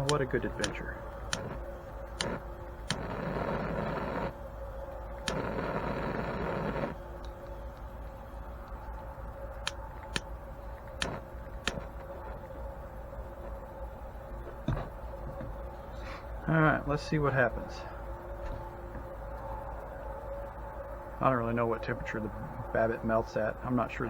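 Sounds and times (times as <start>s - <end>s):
sharp clicks: 0.0s - 4.4s, 5.2s - 7.9s, 9.6s - 12.3s
propane torch hissing: 0.0s - 7.0s, 10.9s - 12.0s.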